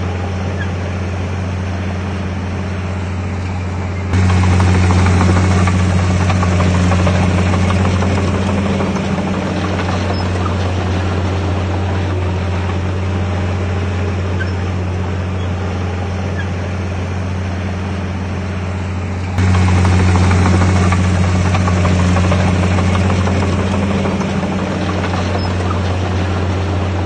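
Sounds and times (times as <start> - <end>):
heavy diesel engine running: 0.0 - 27.0.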